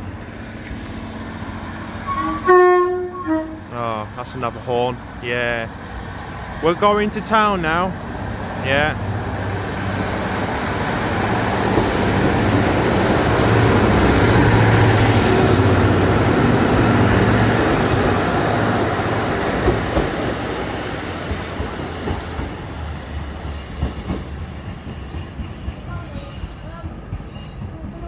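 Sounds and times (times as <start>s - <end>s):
train passing: 0.0s - 28.0s
faint high wheel squeal: 2.0s - 3.8s, 23.0s - 28.0s.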